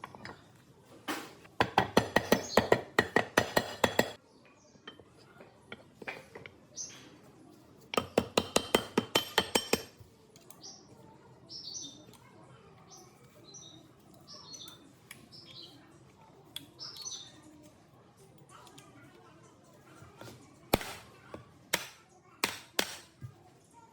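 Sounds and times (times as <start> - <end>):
faint birds chirping: 3.9 - 7.8, 10.1 - 22.4.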